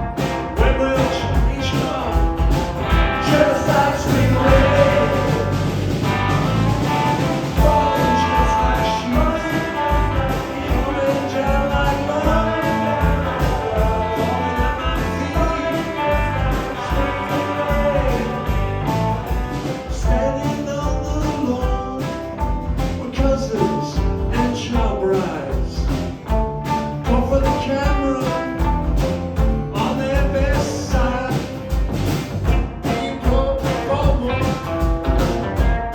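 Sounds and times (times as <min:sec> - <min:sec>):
person singing: 0:00.0 - 0:05.8, 0:07.5 - 0:19.1
drum beat: 0:00.0 - 0:35.9
guitars: 0:00.0 - 0:35.9.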